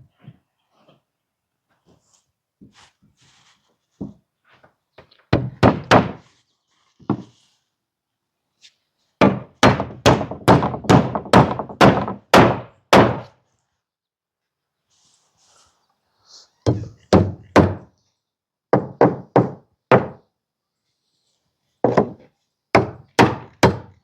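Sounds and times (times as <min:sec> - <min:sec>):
hammer driving nails into wood: 0:05.3 - 0:06.3, 0:09.2 - 0:13.3, 0:16.7 - 0:17.9, 0:22.8 - 0:24.0.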